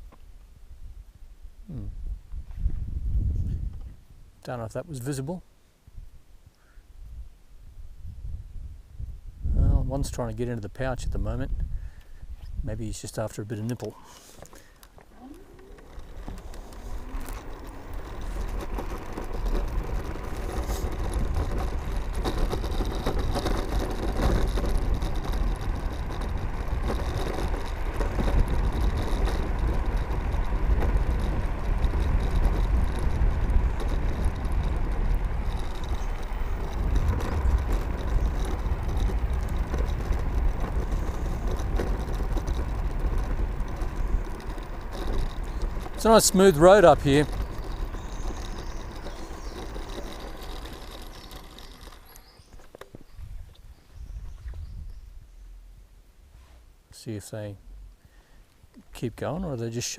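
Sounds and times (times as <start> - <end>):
wind rushing over microphone: 1.7 - 4.4, 7.0 - 13.0, 16.0 - 51.4, 53.1 - 55.5
tyre and road noise: 9.9 - 59.9.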